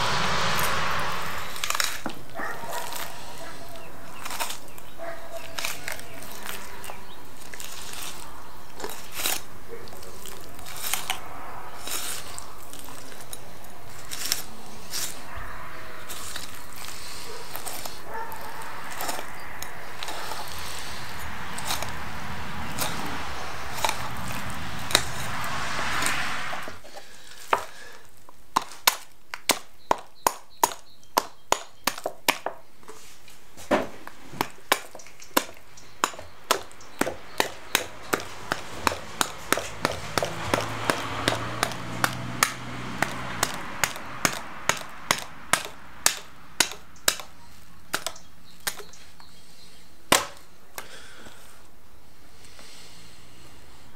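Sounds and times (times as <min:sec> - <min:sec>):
steady rushing noise: 0:00.0 - 0:04.0, 0:10.5 - 0:26.9
knife cracking through fish bones: 0:04.2 - 0:11.2, 0:34.4 - 0:49.0.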